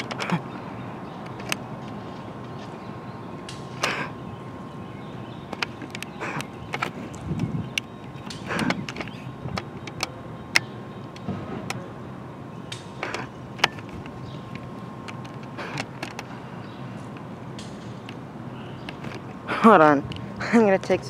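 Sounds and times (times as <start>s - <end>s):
sharp clicks and knocks: 1.2s - 2.7s, 5.5s - 11.9s, 12.7s - 16.3s, 18.8s - 19.4s.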